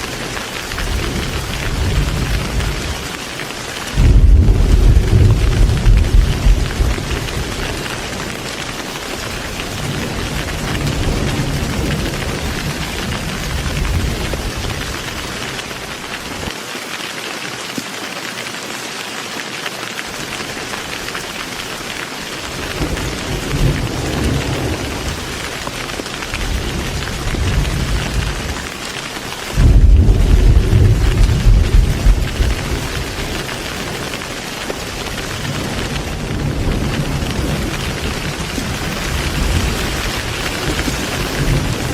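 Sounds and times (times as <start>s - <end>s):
rolling thunder: 0.0s - 3.2s, 3.9s - 15.4s, 22.6s - 28.6s, 29.5s - 41.9s
heavy rain: 0.0s - 41.9s.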